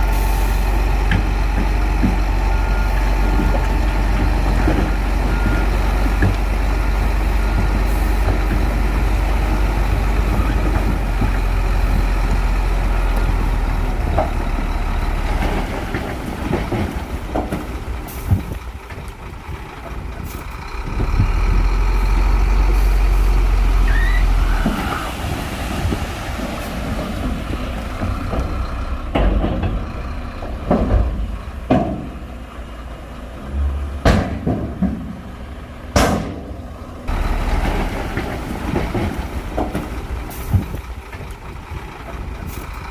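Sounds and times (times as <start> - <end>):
bulldozer diesel engine rumbling: 0.0 - 42.9.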